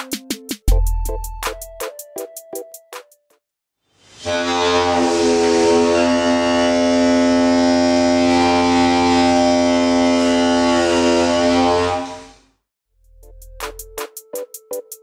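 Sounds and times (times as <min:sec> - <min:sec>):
homemade membrane horn note: 0:04.2 - 0:12.4.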